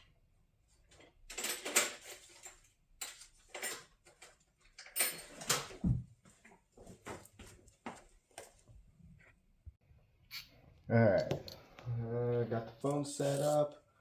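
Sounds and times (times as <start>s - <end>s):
hand tools clinking and rattling: 0.9s - 5.7s.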